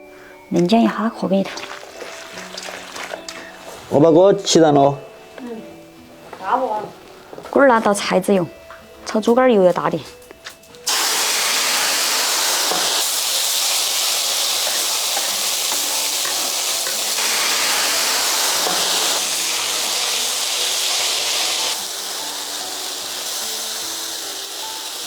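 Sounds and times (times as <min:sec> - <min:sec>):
loud sizzling in a wok: 0:10.8 - 0:25.0.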